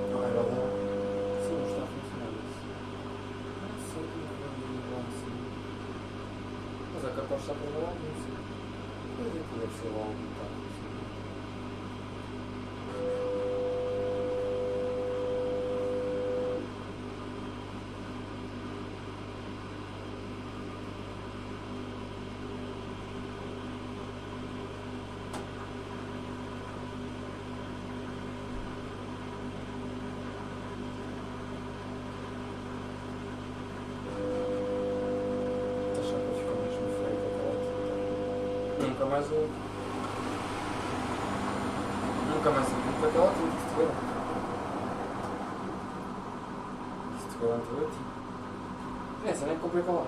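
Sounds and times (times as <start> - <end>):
washing machine motor whining: 0.0 - 2.5, 11.6 - 16.7, 32.8 - 50.0
washing machine hum: 0.0 - 50.0.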